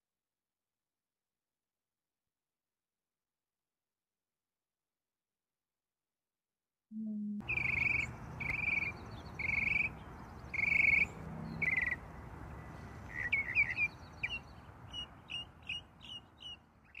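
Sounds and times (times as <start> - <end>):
birds calling: 7.4 - 17.0.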